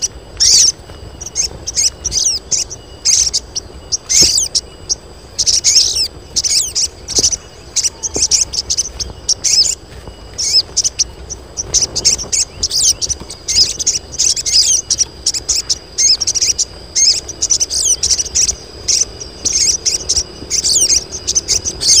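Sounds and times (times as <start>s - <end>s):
birds chirping rapidly: 0.0s - 22.0s.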